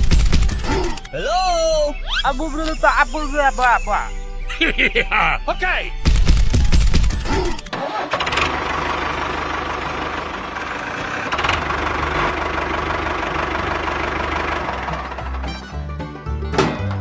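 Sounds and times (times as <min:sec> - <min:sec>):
engine running with pulsing hum: 0:06.2 - 0:15.9.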